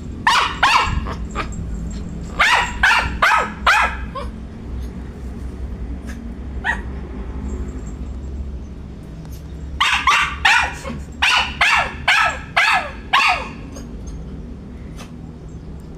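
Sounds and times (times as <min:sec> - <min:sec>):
dog barking: 0:00.2 - 0:01.5, 0:02.2 - 0:04.4, 0:06.1 - 0:07.0, 0:09.8 - 0:13.9.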